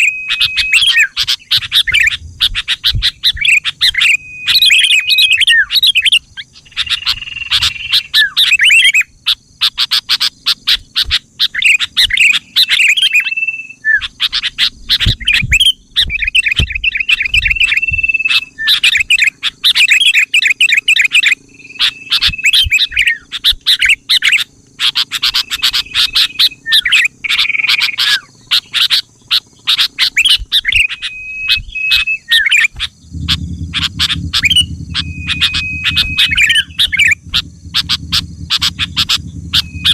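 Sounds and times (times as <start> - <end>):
bulbul song chattering and whistling: 0.0 - 39.9
low hum: 0.3 - 7.7, 32.9 - 39.9.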